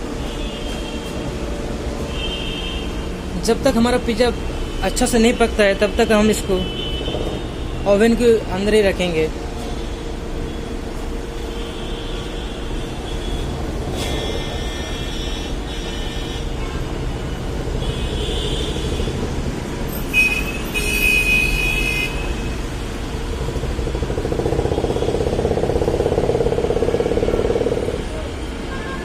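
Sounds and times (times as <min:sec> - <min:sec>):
traffic noise: 0:00.0 - 0:29.0
vehicle horns honking: 0:11.6 - 0:19.2, 0:19.9 - 0:22.9, 0:26.6 - 0:29.0
engine throbbing: 0:22.5 - 0:28.6.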